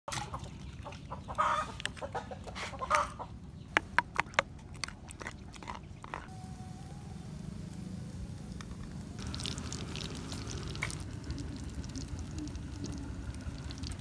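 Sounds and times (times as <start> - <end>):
chickens clucking: 0.1 - 4.4.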